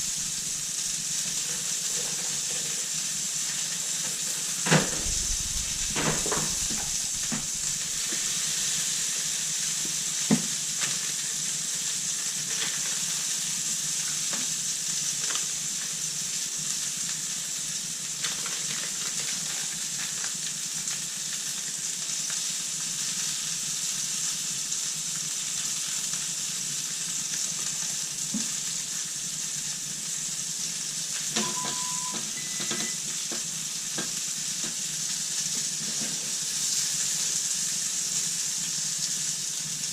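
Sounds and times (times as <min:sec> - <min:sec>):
food sizzling in frying pan: 0:00.0 - 0:39.9
short beep tone: 0:31.4 - 0:33.0.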